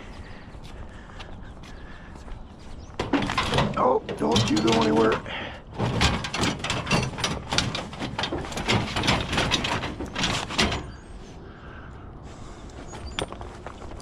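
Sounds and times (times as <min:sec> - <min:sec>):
scrap metal clattering: 0:03.0 - 0:11.2.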